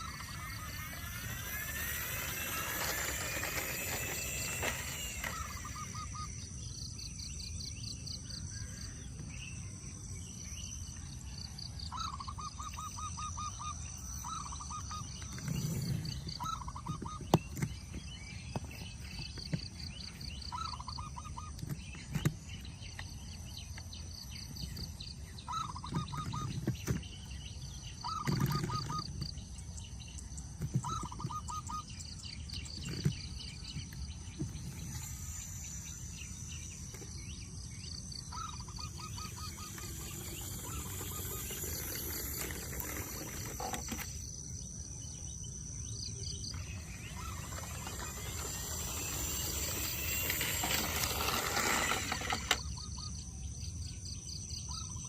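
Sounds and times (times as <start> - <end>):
bird trilling: 0.0 - 6.8, 11.9 - 18.0, 25.4 - 27.2, 27.9 - 29.4, 30.8 - 44.2, 46.3 - 53.2
high insect drone: 0.0 - 26.9, 28.0 - 54.8.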